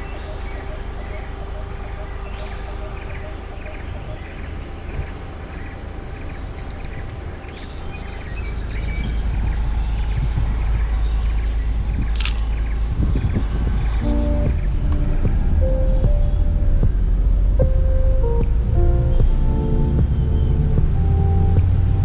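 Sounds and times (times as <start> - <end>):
insects: 0.0 - 16.2
birds calling: 0.0 - 16.4
low rumble: 0.0 - 22.0.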